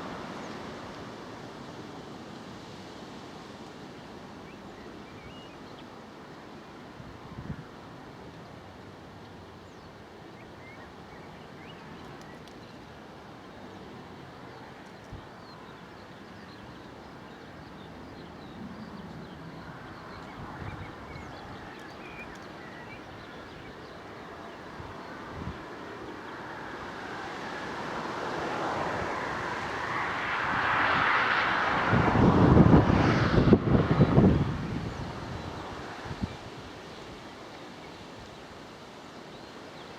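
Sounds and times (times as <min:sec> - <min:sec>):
outdoor background noise: 0:00.0 - 0:39.9
wind buffeting microphone: 0:14.9 - 0:26.0, 0:27.7 - 0:37.2
jet engines roaring: 0:24.0 - 0:36.2.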